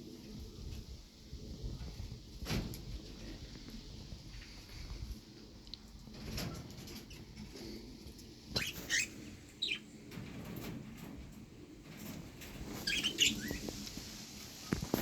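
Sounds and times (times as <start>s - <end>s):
bird chirping: 8.6s - 9.9s, 12.8s - 13.6s.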